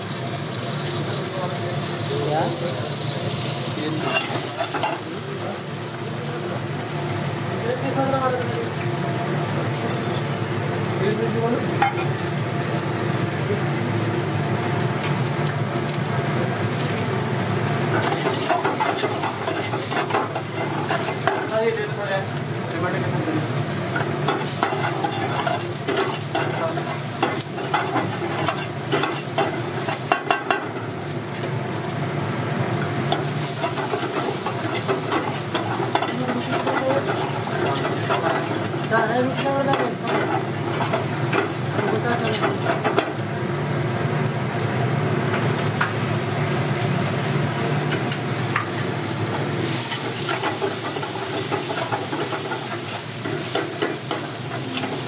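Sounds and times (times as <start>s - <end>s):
onion and garlic sizzling in oil: 0.0s - 55.0s
ladle tapping and scraping a wok: 24.3s - 30.8s.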